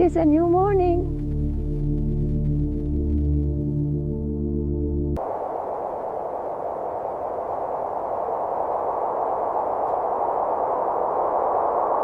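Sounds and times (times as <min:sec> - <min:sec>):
steady rushing noise: 0:05.2 - 0:12.0.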